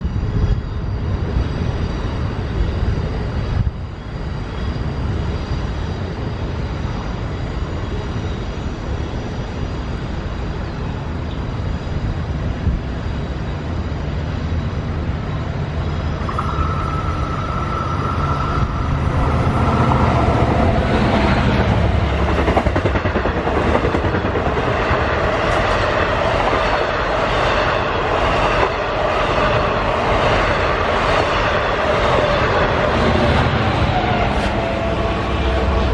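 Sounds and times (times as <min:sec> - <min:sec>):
train rumbling: 0:00.0 - 0:35.9
steady high tone: 0:13.8 - 0:35.9
sustained pitched tones: 0:14.8 - 0:24.0.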